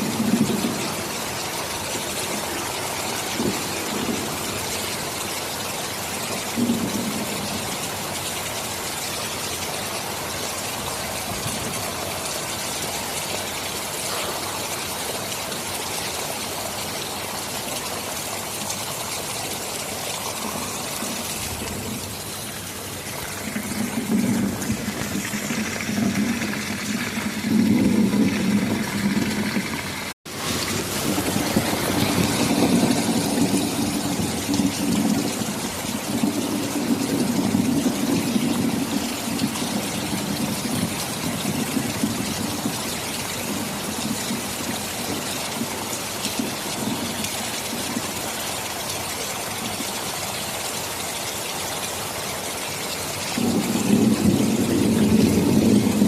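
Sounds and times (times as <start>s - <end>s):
rolling thunder: 0.0s - 1.5s, 2.1s - 5.0s, 6.6s - 7.7s, 20.3s - 45.2s, 53.4s - 56.0s
heavy rain: 0.0s - 56.0s.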